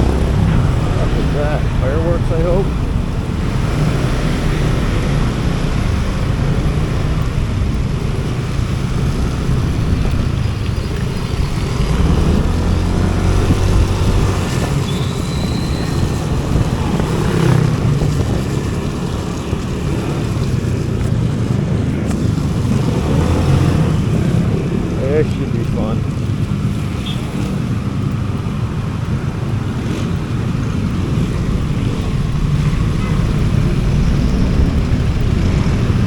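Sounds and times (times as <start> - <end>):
motor vehicle passing: 0.0 - 36.0
wind buffeting microphone: 0.0 - 36.0
river rushing: 11.1 - 36.0.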